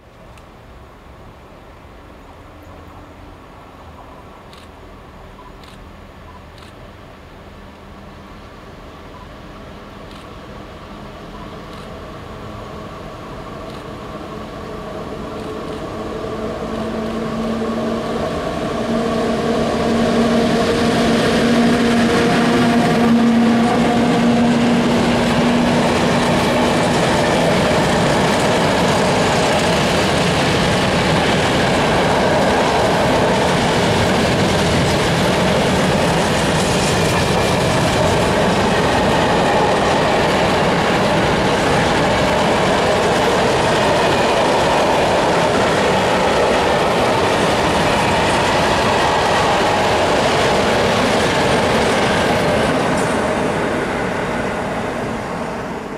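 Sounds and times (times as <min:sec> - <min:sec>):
electric locomotive humming: 0:00.6 - 0:55.9
freight wagons rolling on rails: 0:15.5 - 0:53.7.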